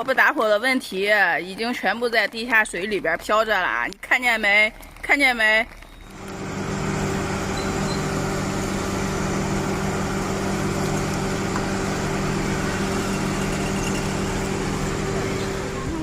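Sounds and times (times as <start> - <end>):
engine running steadily: 6.1 - 16.0.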